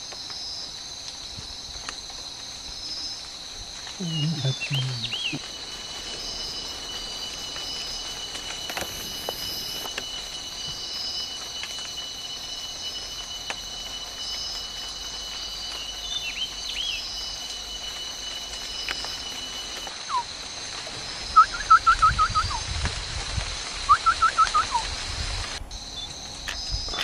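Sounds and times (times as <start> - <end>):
high insect drone: 0.0 - 27.0
bird chirping: 4.0 - 6.3.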